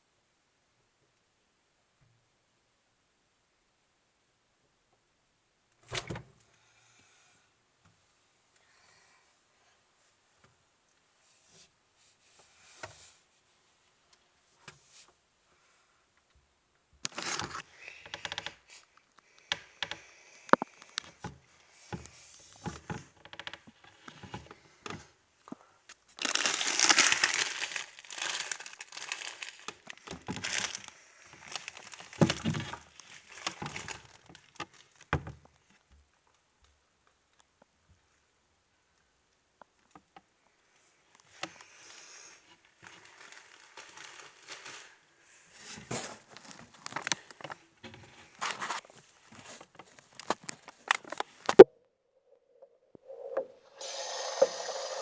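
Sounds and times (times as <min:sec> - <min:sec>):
food packaging crinkling: 0:17.1 - 0:17.6, 0:26.2 - 0:35.1, 0:42.7 - 0:45.1, 0:46.3 - 0:47.6.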